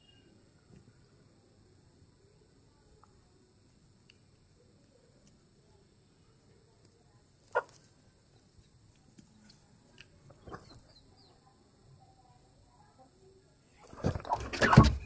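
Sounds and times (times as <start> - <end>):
faint chicken clucks: 7.5 - 7.8.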